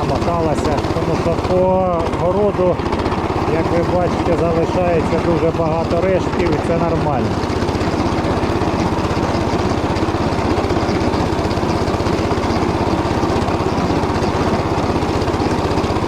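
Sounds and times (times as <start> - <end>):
tiller engine pulsing: 0.0 - 16.0.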